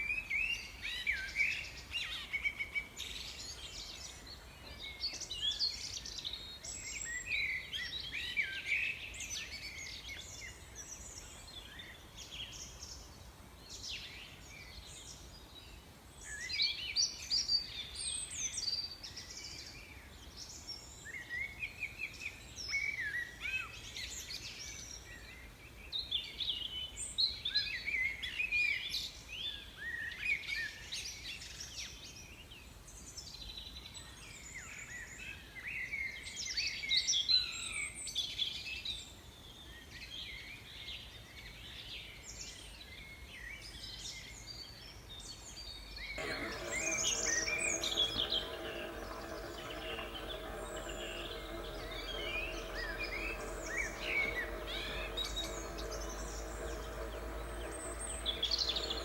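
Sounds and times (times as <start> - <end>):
small birds chirping: 46.2 - 59.0
steady held tones: 46.2 - 59.0.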